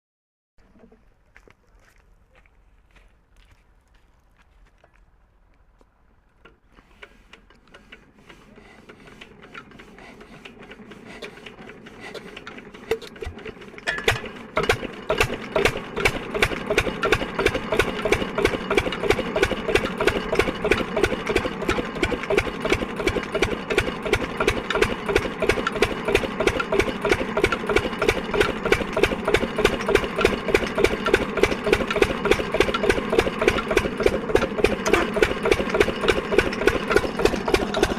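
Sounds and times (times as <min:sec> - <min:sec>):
diesel engine starting and running: 0:05.6 - 0:37.9.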